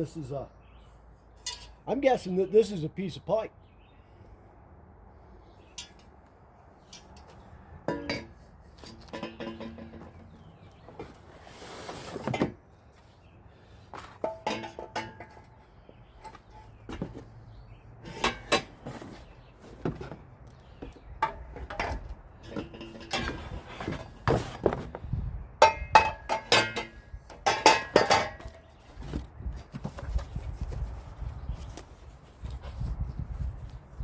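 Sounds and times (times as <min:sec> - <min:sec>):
metal pipes clinking: 0:01.4 - 0:01.8, 0:05.7 - 0:06.2, 0:06.8 - 0:10.3, 0:14.2 - 0:15.5, 0:18.0 - 0:18.9, 0:21.2 - 0:24.2, 0:25.6 - 0:28.6.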